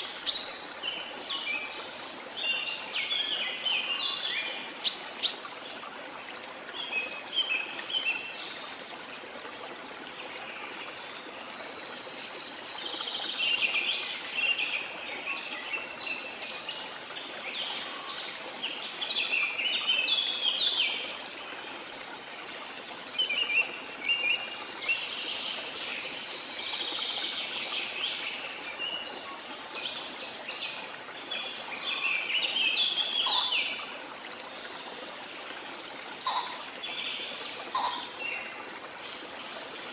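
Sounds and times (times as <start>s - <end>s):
birds chirping and trilling: 31.3s - 33.8s, 36.2s - 38.5s.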